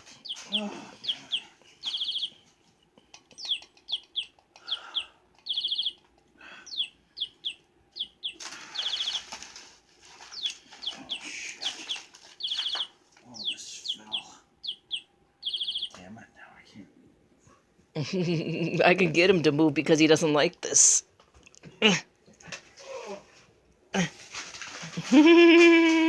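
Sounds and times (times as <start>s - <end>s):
rustling: 0.0s - 2.9s, 8.2s - 13.7s, 22.4s - 26.0s
toy bird chirping: 0.2s - 2.4s, 3.2s - 9.4s, 10.3s - 16.0s.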